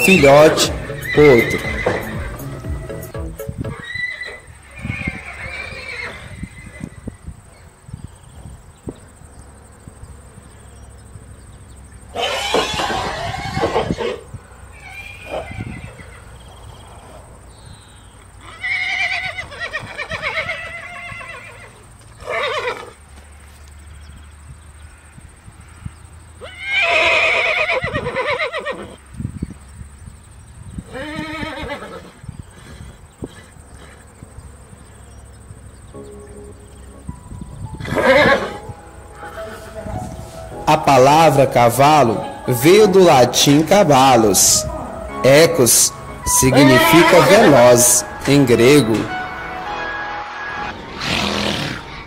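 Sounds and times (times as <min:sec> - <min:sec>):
horses neighing: 0:00.0 - 0:07.2, 0:12.0 - 0:17.3, 0:18.4 - 0:23.0, 0:26.4 - 0:29.0, 0:30.8 - 0:34.3, 0:37.8 - 0:49.1, 0:51.0 - 0:52.0.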